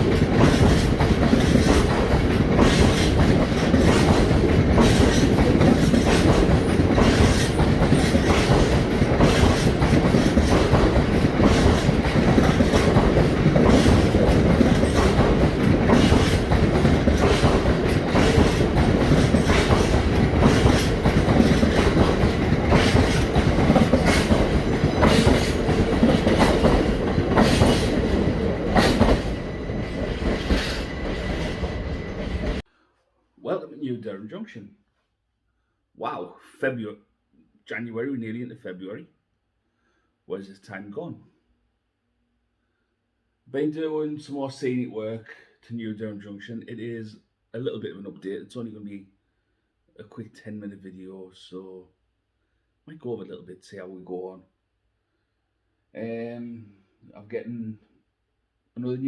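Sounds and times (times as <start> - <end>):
train rumbling along track: 0.0 - 32.6
wheels clicking over rail joints: 0.0 - 32.6.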